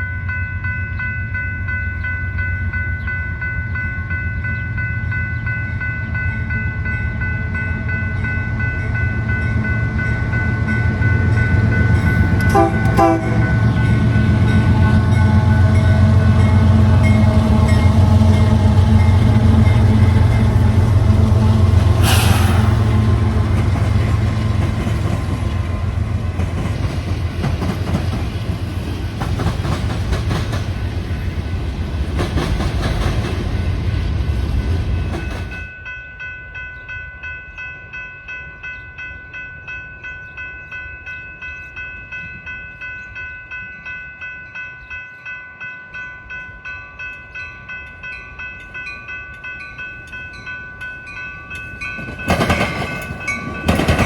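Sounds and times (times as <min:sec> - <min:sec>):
train rumble: 0:00.0 - 0:35.8, 0:47.7 - 0:54.0
multi-note train horn: 0:12.4 - 0:13.9, 0:14.5 - 0:23.6
burst of hiss: 0:22.0 - 0:22.9
wheels clicking over rail joints: 0:22.9 - 0:31.1, 0:51.5 - 0:54.0.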